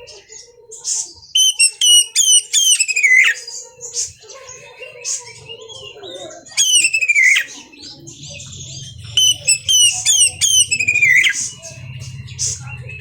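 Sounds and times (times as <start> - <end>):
bird singing whistled phrases: 1.2 - 3.6, 6.5 - 13.0.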